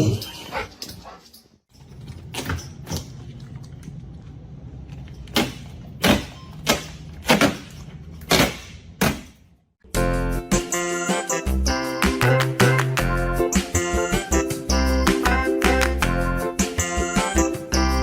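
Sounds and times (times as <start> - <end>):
music: 9.9 - 18.0.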